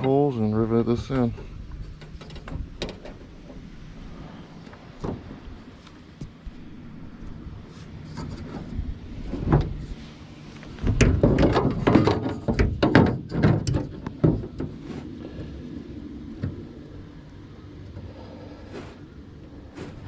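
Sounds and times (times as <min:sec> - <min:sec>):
aluminum pieces clunking on hull: 0:01.3 - 0:03.6, 0:10.8 - 0:15.5.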